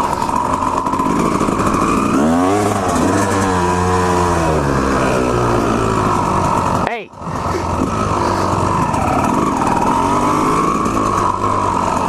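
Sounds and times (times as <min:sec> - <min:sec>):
two-stroke dirt bike engine: 0:00.0 - 0:12.0.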